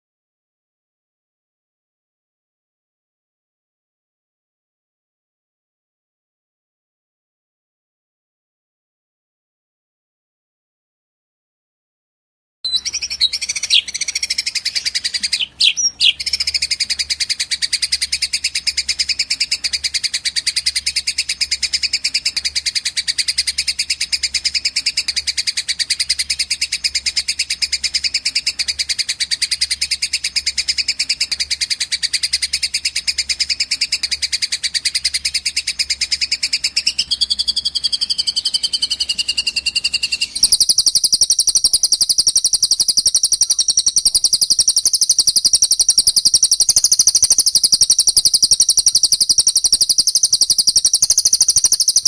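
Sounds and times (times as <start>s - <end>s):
higher bird chirping: 12.7s - 52.0s
rapid high bird chirps: 12.7s - 52.0s.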